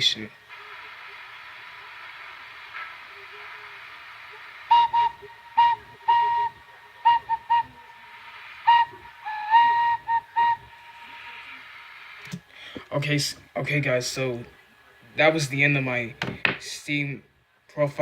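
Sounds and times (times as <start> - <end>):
steady background hiss: 0.0 - 18.0
train whistle toots: 4.7 - 12.1.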